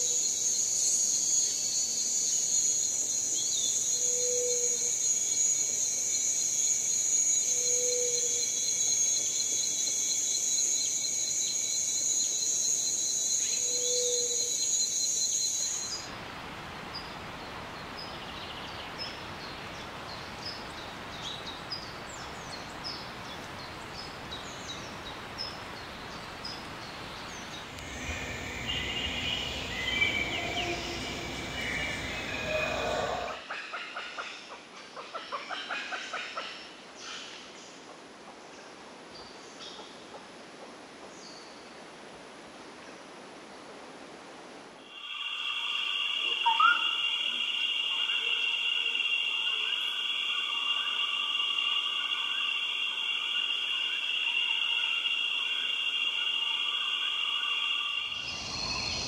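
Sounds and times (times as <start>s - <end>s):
insect drone with pulsing trill: 0.0s - 16.1s, 24.0s - 33.6s, 44.8s - 59.0s
even hiss: 1.5s - 33.4s, 44.7s - 59.0s
high bird chirps: 45.6s - 54.8s.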